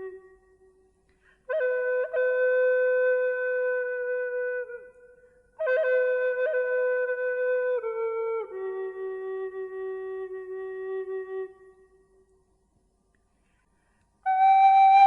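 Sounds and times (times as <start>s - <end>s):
solo woodwind melody: 0.0s - 12.4s, 14.2s - 15.0s.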